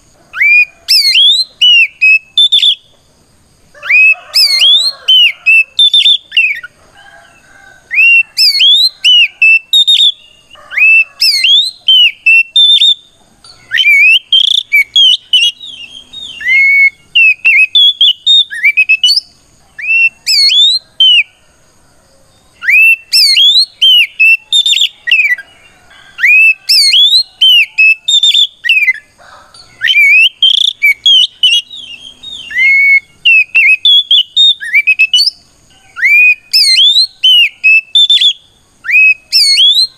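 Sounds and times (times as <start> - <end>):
magpie-robin singing: 0.3 - 2.9, 3.8 - 6.7, 7.9 - 21.3, 22.6 - 25.4, 26.1 - 29.1, 29.7 - 35.4, 36.0 - 39.9.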